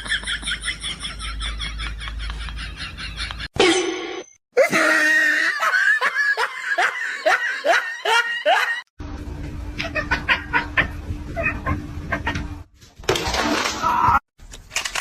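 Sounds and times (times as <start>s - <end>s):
person laughing hard: 4.6s - 8.9s, 9.8s - 12.4s.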